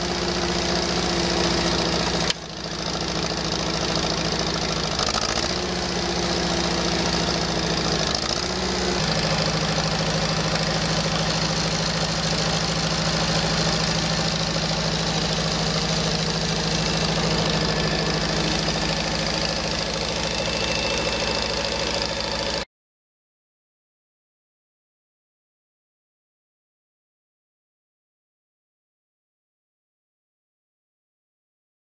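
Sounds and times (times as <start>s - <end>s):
tractor engine idling: 0.0s - 22.7s.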